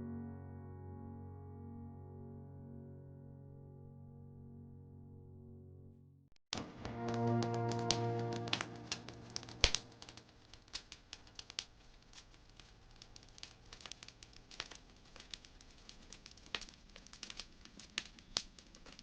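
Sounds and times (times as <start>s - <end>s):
fire pops and snaps: 6.6s - 19.0s
wood fire crackling: 6.6s - 19.0s
musical chord: 6.8s - 10.2s.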